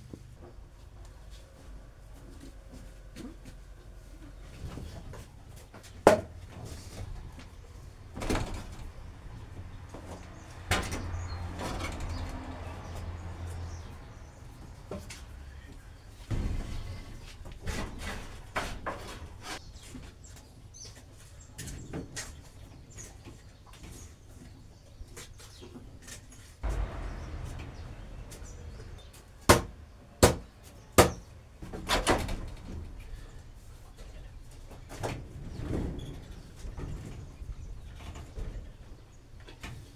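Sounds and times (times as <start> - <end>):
sharp knocks and thumps: 26.6 - 32.8.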